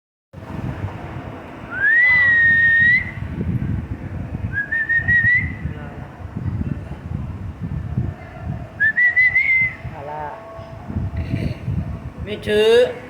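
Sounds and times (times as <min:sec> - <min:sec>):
steady low rumble: 0:00.4 - 0:13.0
long whistles: 0:01.7 - 0:03.3, 0:04.5 - 0:05.7, 0:08.8 - 0:09.9.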